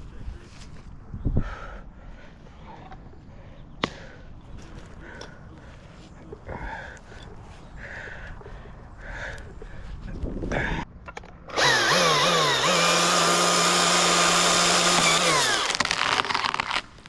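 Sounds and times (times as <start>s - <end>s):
chainsaw revving: 11.5s - 16.8s.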